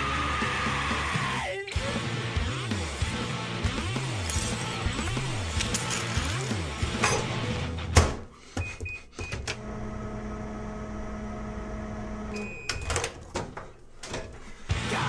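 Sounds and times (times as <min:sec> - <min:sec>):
appliance beeping: 0:08.6 - 0:13.2
appliance humming: 0:09.2 - 0:14.2.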